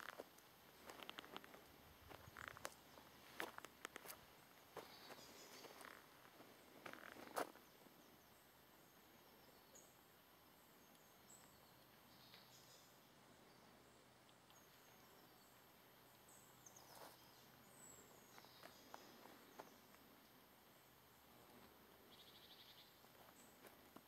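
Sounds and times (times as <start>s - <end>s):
faint ticks: 0.0s - 2.8s, 3.4s - 4.2s
faint high bird chirps: 10.7s - 20.0s, 22.1s - 23.6s.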